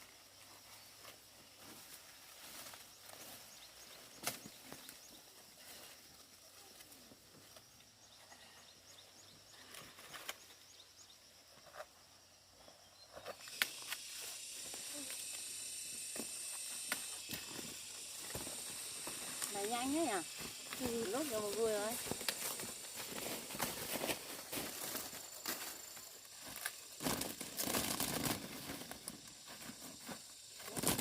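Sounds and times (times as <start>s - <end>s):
corn stalks snapping: 4.2s - 4.4s, 13.5s - 14.1s
dry corn plants rustling: 16.4s - 31.0s.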